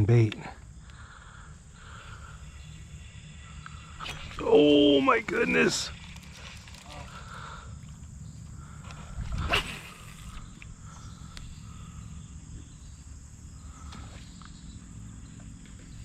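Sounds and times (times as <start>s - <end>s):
steady low rumble: 0.0s - 16.0s
fishing rod cast whoosh: 3.9s - 4.5s, 9.3s - 10.5s.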